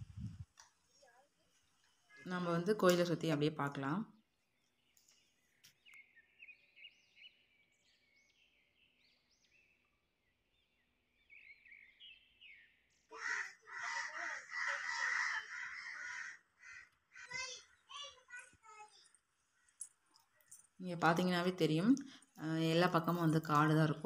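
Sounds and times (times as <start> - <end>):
birds chirping: 0.0 - 24.0
loud noisy bird calling: 13.1 - 18.6.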